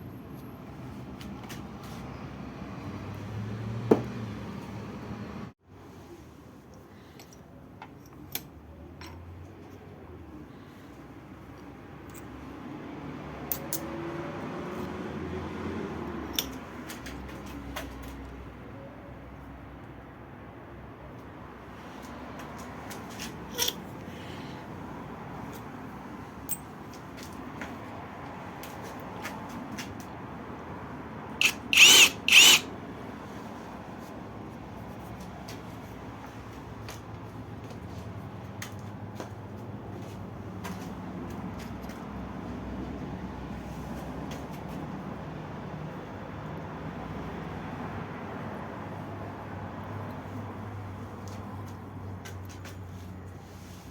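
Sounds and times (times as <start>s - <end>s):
electric drill motor whine: 31.4s - 32.7s
sharp metallic clicks: 31.4s - 32.7s
small machine humming: 31.4s - 32.7s.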